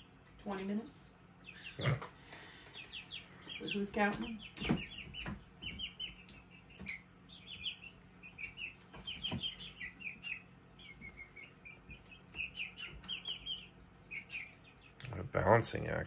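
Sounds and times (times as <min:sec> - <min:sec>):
chicks peeping: 0:00.0 - 0:15.9.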